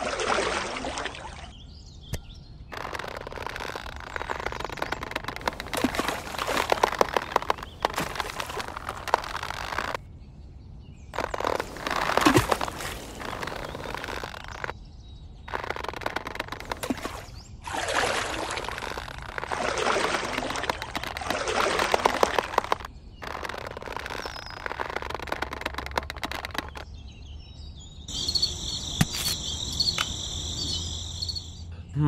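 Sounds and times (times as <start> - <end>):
water splashing and sloshing: 0.0 - 1.6, 2.7 - 10.0, 11.2 - 14.7, 15.5 - 26.9
birds chirping: 1.1 - 32.0
small crackles: 2.1 - 10.0, 11.2 - 14.8, 15.4 - 26.9, 29.0 - 30.2.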